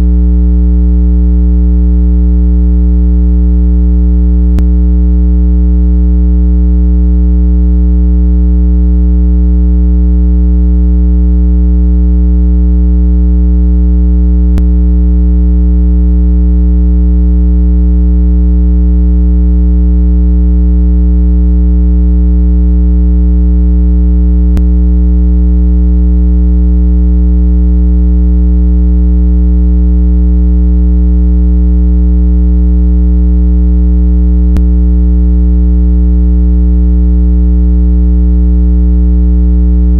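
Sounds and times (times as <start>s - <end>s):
steady low synthesized tone: 0.0s - 19.3s, 21.6s - 26.3s, 34.4s - 34.8s.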